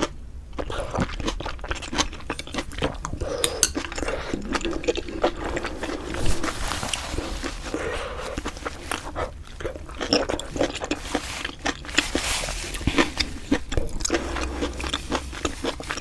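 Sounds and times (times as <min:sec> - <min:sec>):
close chewing with mouth smacks: 0:00.0 - 0:16.0.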